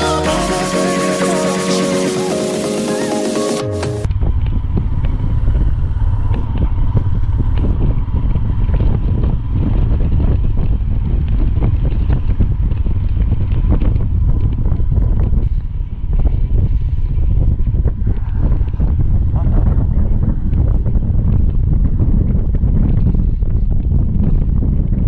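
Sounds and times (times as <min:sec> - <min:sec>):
music: 0:00.0 - 0:04.1
wind buffeting microphone: 0:04.1 - 0:25.0.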